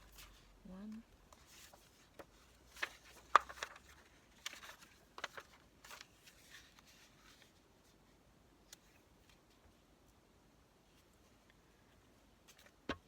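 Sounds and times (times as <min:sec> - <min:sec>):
paper rustling: 0:01.3 - 0:09.8.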